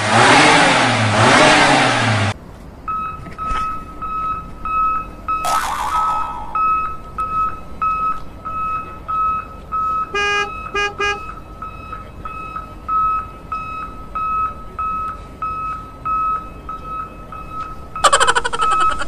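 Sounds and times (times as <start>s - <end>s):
reversing alarm beeping: 2.9s - 19.0s
horn toots: 10.1s - 11.3s.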